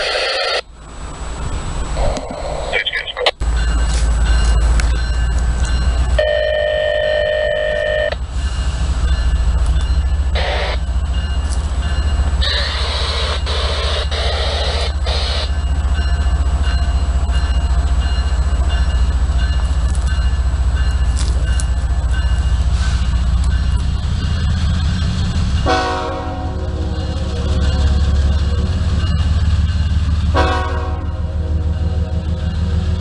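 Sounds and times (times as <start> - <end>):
diesel locomotive engine rumble: 0.0 - 33.0
train horn blast: 25.6 - 28.8, 30.3 - 32.4.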